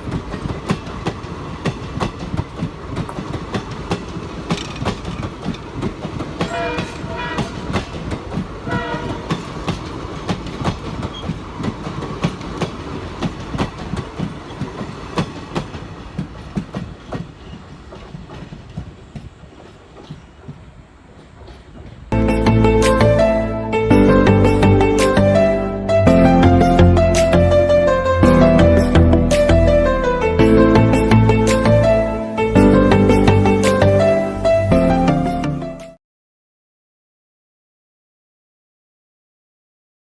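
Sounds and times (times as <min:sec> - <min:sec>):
train wheels clicking over rails: 0:00.0 - 0:22.2.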